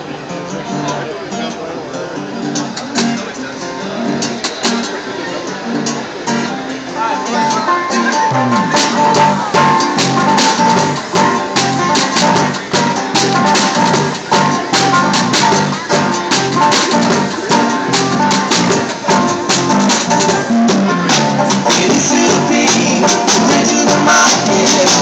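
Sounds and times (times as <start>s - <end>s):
live band playing: 2.3s - 25.0s
sharp percussive strikes: 8.2s - 22.1s.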